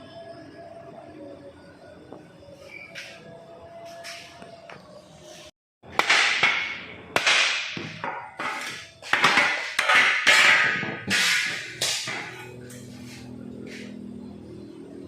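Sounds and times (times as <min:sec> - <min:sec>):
hammer striking sheet metal: 0:05.9 - 0:12.5.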